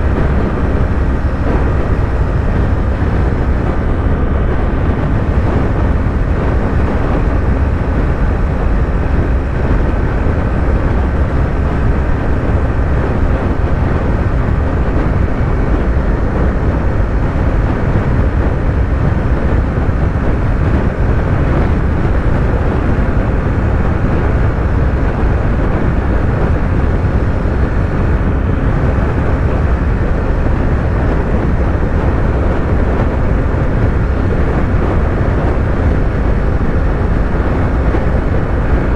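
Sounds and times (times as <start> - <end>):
wind rush: 0.0 - 38.9.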